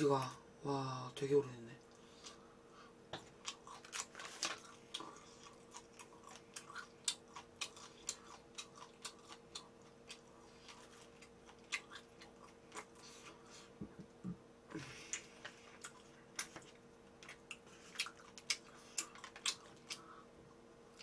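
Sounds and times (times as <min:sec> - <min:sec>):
faint steady hum: 0:00.0 - 0:21.0
chewing with mouth clicks: 0:03.3 - 0:13.5, 0:15.0 - 0:20.3.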